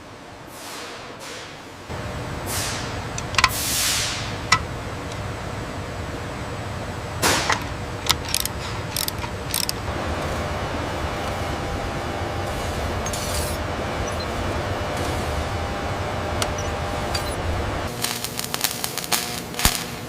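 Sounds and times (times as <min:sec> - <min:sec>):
low machine hum: 0:01.8 - 0:20.0
mechanical clicks and clanks: 0:03.1 - 0:03.6, 0:07.2 - 0:18.0.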